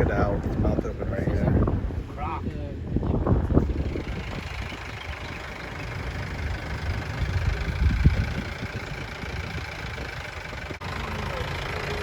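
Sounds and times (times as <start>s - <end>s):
jeep engine idling: 2.8s - 12.0s.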